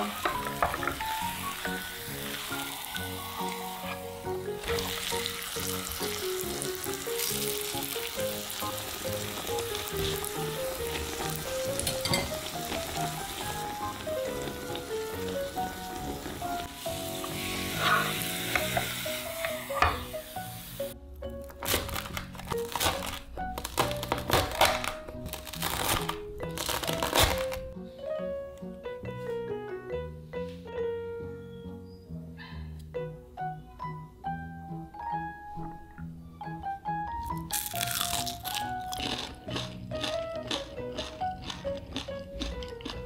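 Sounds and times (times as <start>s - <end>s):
potato cake sizzling in oil: 0.0s - 21.0s
soft background music: 0.0s - 43.0s.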